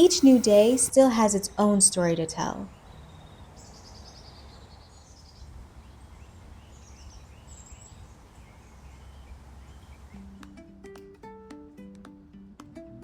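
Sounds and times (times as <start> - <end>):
plucked guitar music: 10.2 - 13.0.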